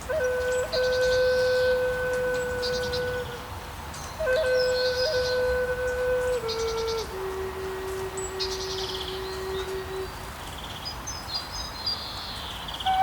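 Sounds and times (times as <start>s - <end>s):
slow flute phrase: 0.0s - 10.3s
songbirds chirping and trilling: 0.1s - 13.0s.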